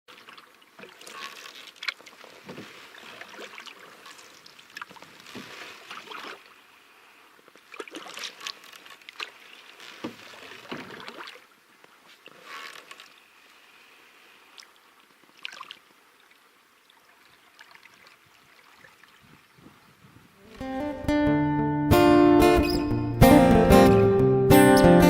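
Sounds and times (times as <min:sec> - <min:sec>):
paddle strokes splashing in water: 0:00.1 - 0:19.7.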